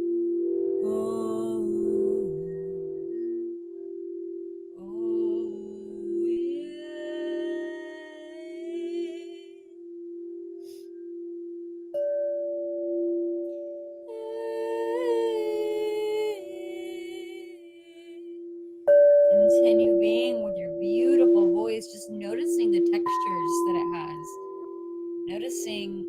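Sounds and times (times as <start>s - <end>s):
higher steady tone: 0.0s - 26.0s
singing bowl ringing: 0.0s - 26.0s
person humming long notes: 0.8s - 3.2s, 4.8s - 9.7s, 14.1s - 18.4s.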